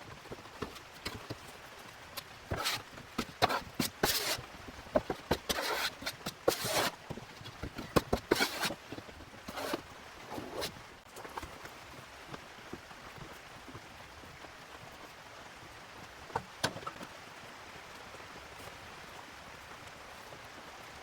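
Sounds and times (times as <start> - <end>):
spreader scraping body filler: 0.3 - 10.8.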